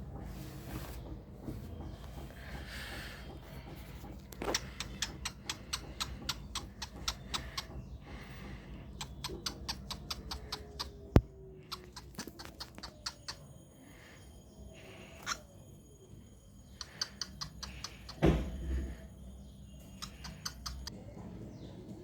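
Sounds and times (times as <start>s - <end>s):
cockatiel beak clicking: 4.4s - 13.4s, 16.8s - 18.2s, 19.9s - 20.9s.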